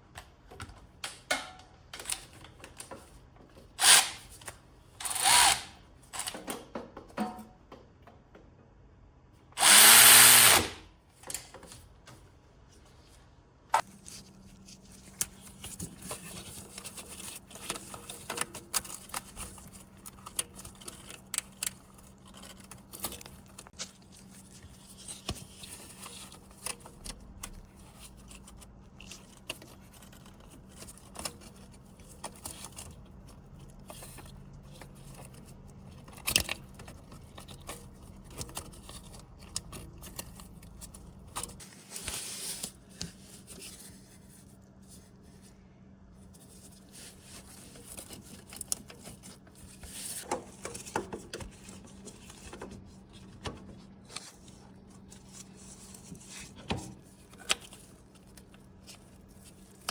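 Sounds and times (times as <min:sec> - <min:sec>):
power tool running: 0:05.0 - 0:06.3, 0:09.6 - 0:10.8.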